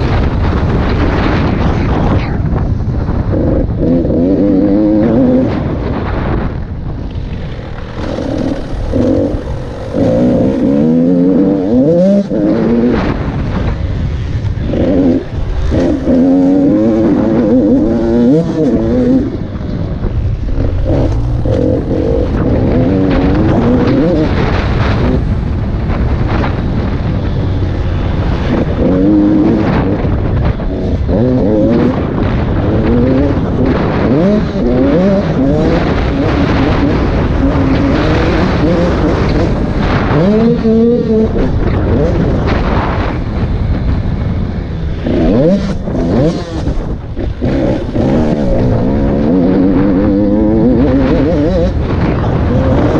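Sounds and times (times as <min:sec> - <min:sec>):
constant rush of noise: 0:00.0 - 0:52.9
motocross engine revving: 0:03.1 - 0:52.9.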